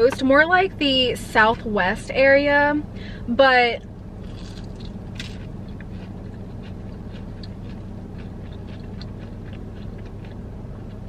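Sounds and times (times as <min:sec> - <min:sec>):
steady low hum: 0:00.0 - 0:11.0
person chewing crunchy food: 0:04.2 - 0:11.0.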